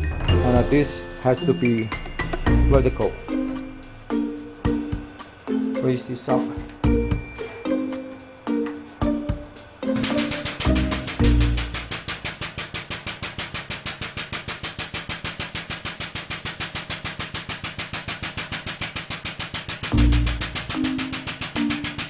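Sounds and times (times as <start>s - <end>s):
background music: 0.0s - 12.0s
pneumatic pump chattering: 9.8s - 22.0s.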